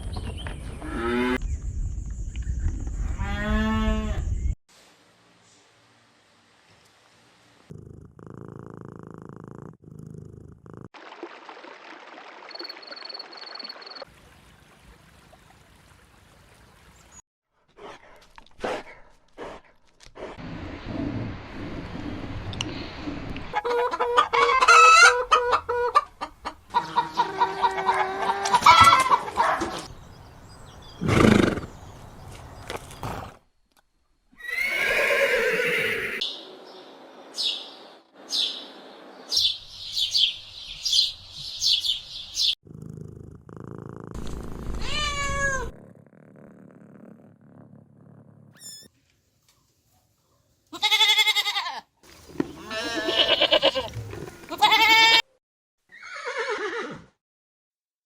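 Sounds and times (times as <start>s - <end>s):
animal cries and bleats: 3.2s - 4.4s, 44.8s - 45.8s, 50.7s - 55.3s.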